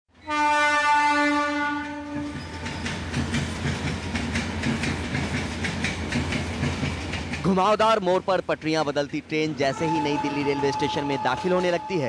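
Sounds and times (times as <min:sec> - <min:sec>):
train horn blast: 0:00.2 - 0:02.4, 0:09.7 - 0:12.0
train wheels clattering over rails: 0:01.8 - 0:09.3.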